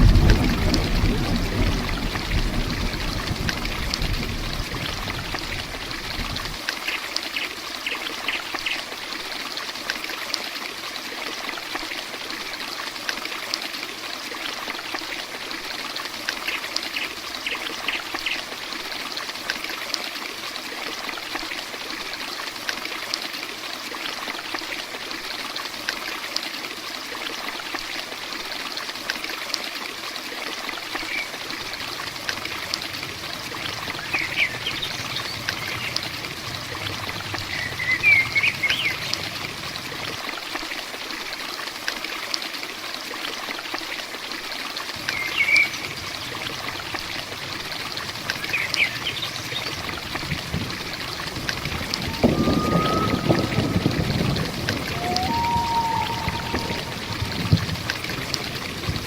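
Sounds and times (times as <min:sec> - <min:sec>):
heavy rain falling: 0:00.0 - 0:10.2, 0:30.5 - 0:42.8, 0:44.4 - 0:59.0
low rumble: 0:49.6 - 0:59.0.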